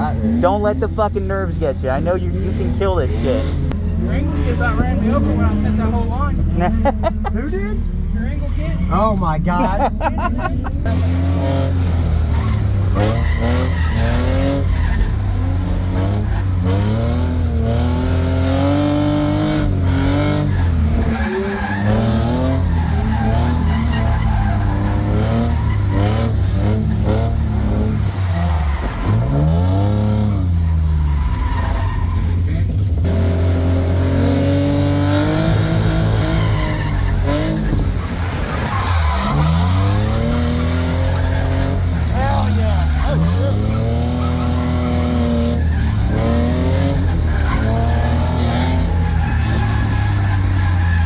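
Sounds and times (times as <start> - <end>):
car engine revving: 0.0 - 51.0
tyre squeal: 11.4 - 32.8, 34.2 - 51.0.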